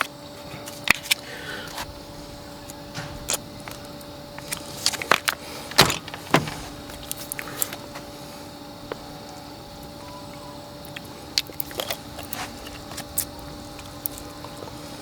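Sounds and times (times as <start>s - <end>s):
faint steady hum: 0.0s - 15.0s
irregular knocks and clinks: 2.1s - 7.8s.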